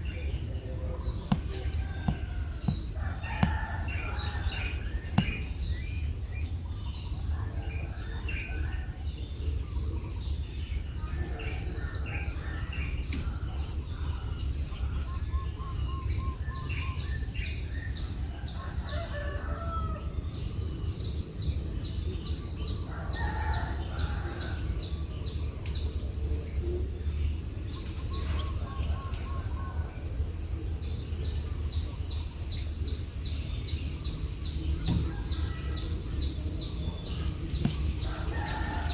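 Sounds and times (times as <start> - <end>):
birds calling: 0.0 - 38.9
birds chirping: 0.0 - 38.9
steady low rumble: 28.7 - 38.9.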